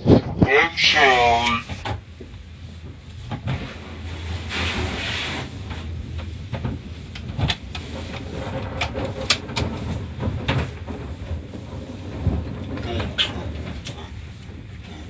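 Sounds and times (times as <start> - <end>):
car wash machinery rumbling: 0.0 - 15.0
sharp knocks and clatters: 5.6 - 14.7.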